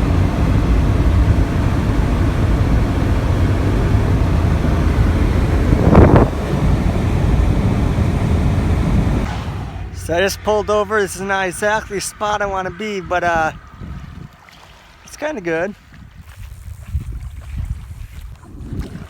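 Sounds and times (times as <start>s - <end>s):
car road noise at speed: 0.0s - 14.5s
wind buffeting microphone: 0.0s - 19.0s.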